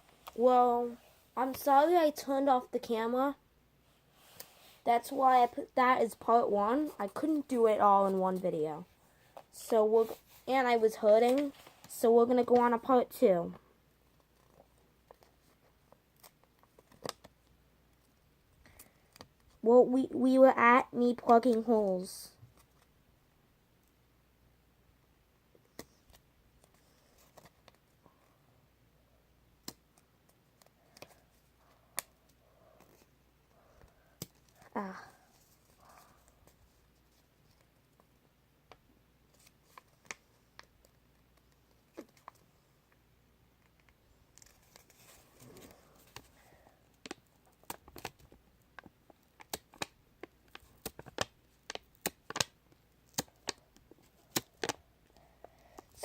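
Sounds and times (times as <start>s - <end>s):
soft crinkling rustle: 0.0s - 1.8s, 3.8s - 12.9s, 13.5s - 19.6s, 25.5s - 28.2s, 29.6s - 56.0s
sharp clicks and snaps: 47.0s - 53.6s.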